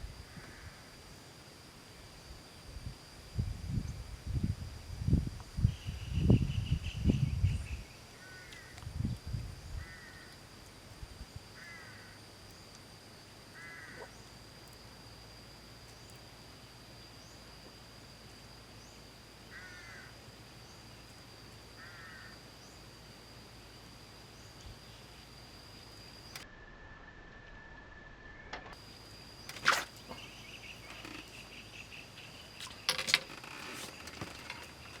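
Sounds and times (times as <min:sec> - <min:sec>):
high-pitched insect drone: 0:23.8 - 0:35.0.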